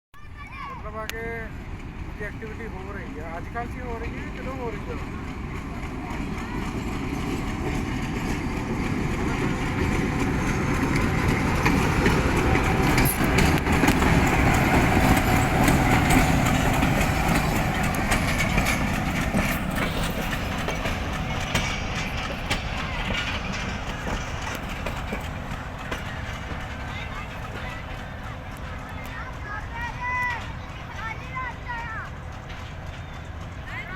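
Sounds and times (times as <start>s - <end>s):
diesel locomotive engine rumble: 0.2s - 33.9s
metal clanks: 6.6s - 27.6s.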